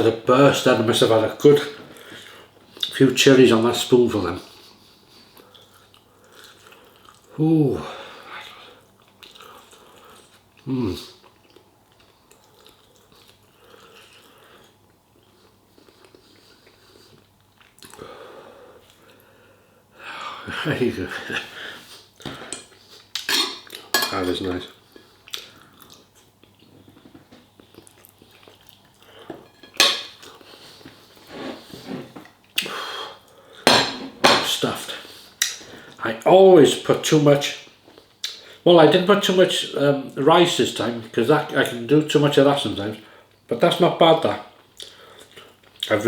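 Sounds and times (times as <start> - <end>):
person chewing food: 5.2 - 7.3, 8.4 - 18.1, 24.8 - 32.7
metal spoon clinking on dish: 23.3 - 24.2.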